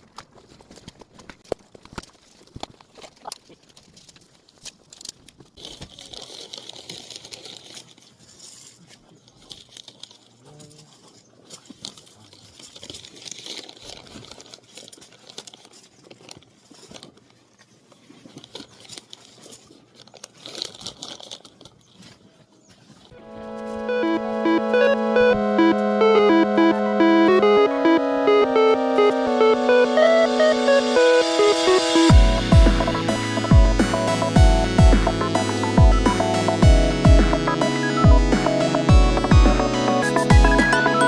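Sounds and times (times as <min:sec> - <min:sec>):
plastic crinkling and rustling: 0:00.0 - 0:23.2.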